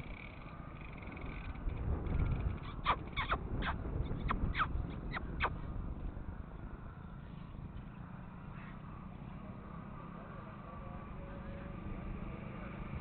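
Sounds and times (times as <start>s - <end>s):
bird sharp descending calls: 2.6s - 5.6s.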